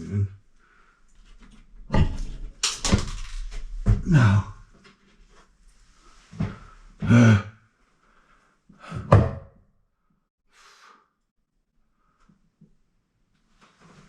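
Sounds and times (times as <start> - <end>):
hollow thunks of handled parts: 1.4 - 4.0
person grunting: 4.0 - 4.6, 7.0 - 7.6.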